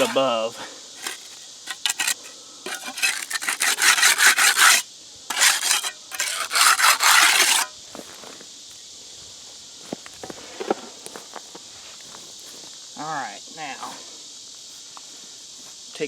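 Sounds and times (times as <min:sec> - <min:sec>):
wet concrete scraping: 0:00.0 - 0:00.3, 0:01.0 - 0:07.7.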